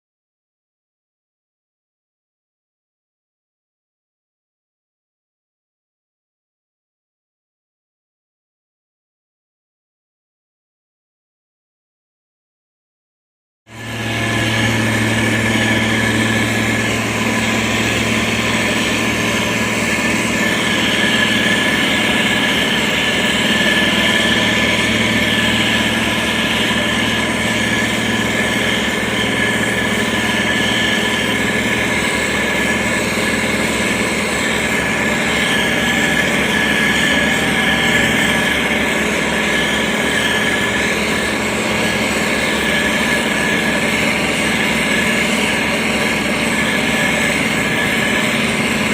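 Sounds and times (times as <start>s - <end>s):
diesel engine humming: 13.7s - 48.9s
high whine: 13.7s - 48.9s.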